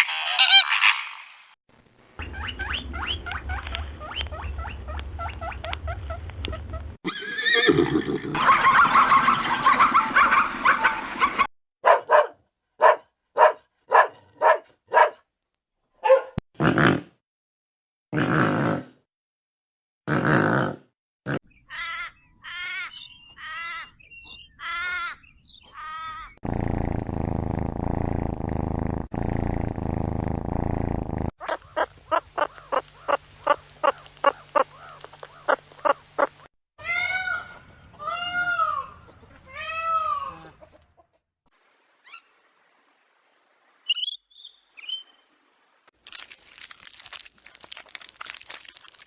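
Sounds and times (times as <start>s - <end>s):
rising and falling animal calls: 0.0s - 1.3s
long dense low animal sound: 26.4s - 31.3s.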